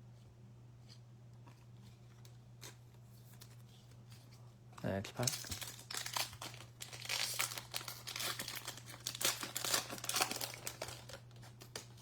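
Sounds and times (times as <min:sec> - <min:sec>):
card pack wrapper tearing and crinkling: 0:05.1 - 0:12.0.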